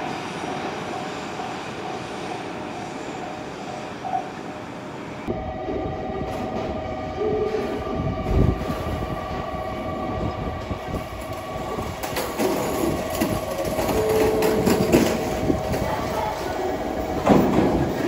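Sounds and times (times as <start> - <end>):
electric train running: 0.0 - 18.0
steady high hum: 4.6 - 17.4
wheel clatter over rails: 10.6 - 18.0.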